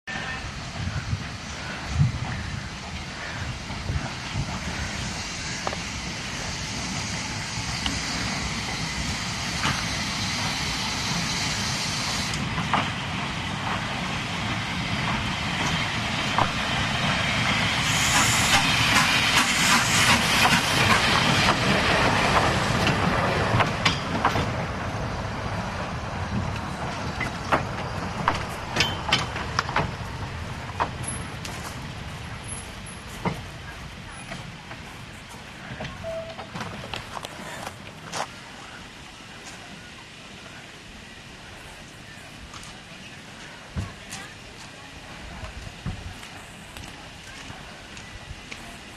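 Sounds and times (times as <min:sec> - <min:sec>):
steam train running: 0:00.1 - 0:48.9
steam hissing: 0:00.6 - 0:35.2
sharp clanks and knocks: 0:27.2 - 0:30.0.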